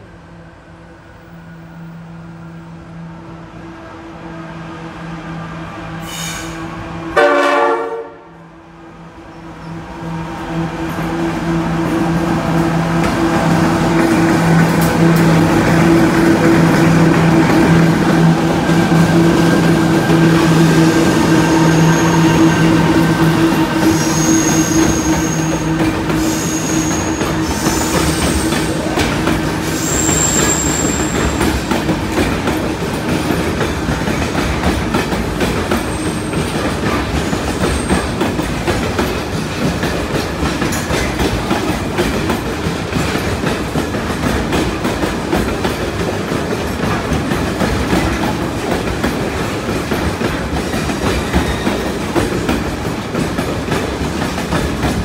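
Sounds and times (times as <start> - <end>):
diesel locomotive engine humming: 0.0 - 55.0
wagons rumbling on rails: 0.6 - 55.0
high-pitched wheel squeals: 23.6 - 25.6, 26.2 - 28.7, 29.6 - 31.5.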